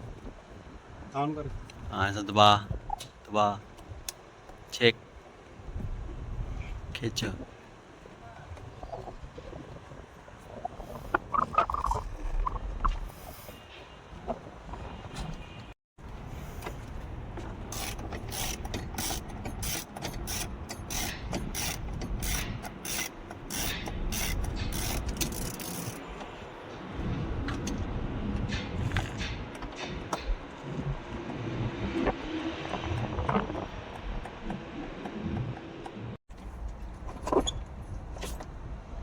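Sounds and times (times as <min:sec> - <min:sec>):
ratchet wrench clicking: 0:17.7 - 0:26.0.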